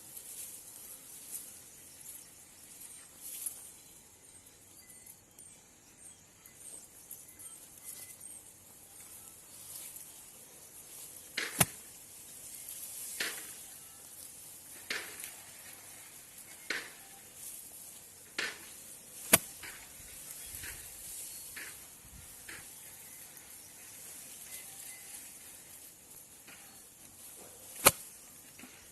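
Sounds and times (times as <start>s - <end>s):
hand tool strokes: 9.5s - 28.9s.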